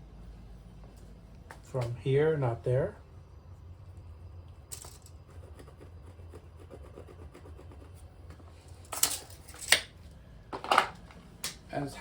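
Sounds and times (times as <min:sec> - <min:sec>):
steady low hum: 0:00.0 - 0:12.0
rubbing and scratching: 0:04.8 - 0:09.5.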